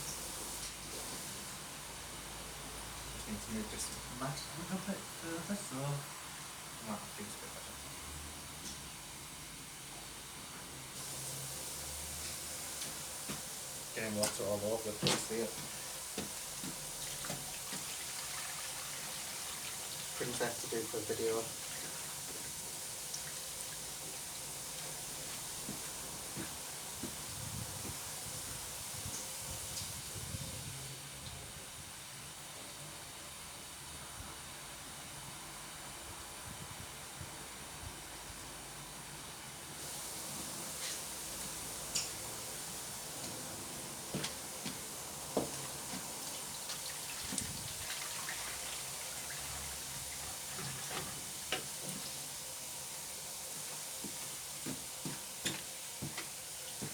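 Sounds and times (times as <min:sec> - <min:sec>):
water running from a tap: 0:00.0 - 0:07.8, 0:10.9 - 0:30.9, 0:39.8 - 0:56.9.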